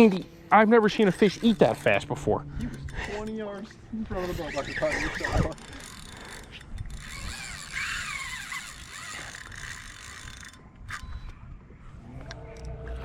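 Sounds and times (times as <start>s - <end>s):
fishing reel clicking whir: 1.0s - 3.1s, 4.3s - 11.2s.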